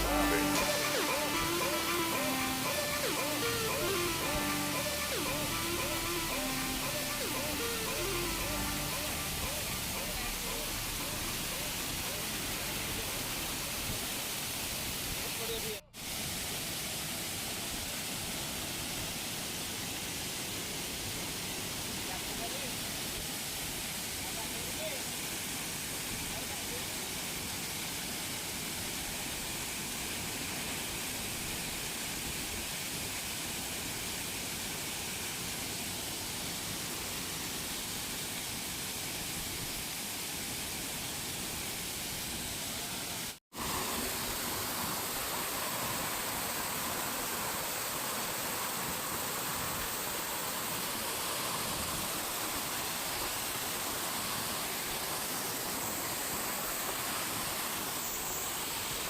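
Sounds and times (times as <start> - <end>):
waterfall rushing: 0.0 - 16.4.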